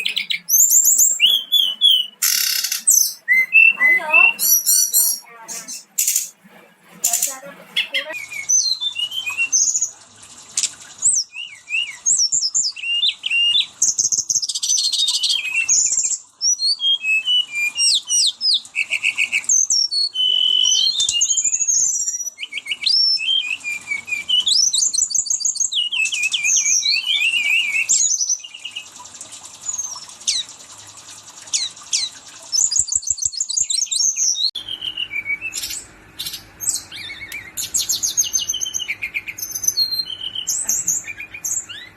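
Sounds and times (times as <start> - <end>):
bird singing chirps and trills: 0.0 - 6.3, 7.0 - 10.0, 11.0 - 41.9.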